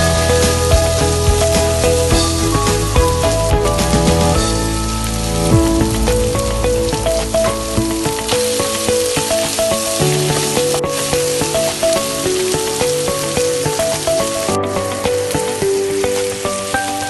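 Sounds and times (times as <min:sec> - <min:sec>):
background music simple melody: 0:00.0 - 0:17.0
food sizzling in hot oil: 0:00.0 - 0:17.0.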